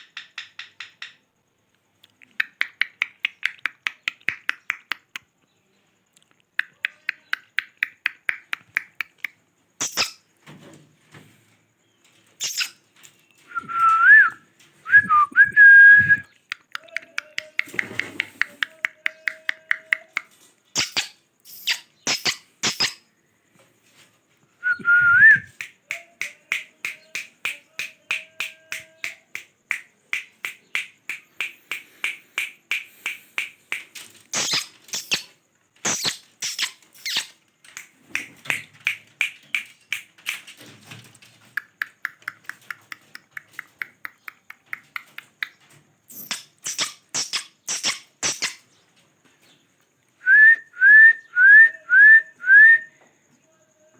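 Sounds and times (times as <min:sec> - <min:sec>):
parrot clicking calls: 0:16.4 - 0:23.0, 0:25.6 - 0:40.5, 0:41.6 - 0:48.6.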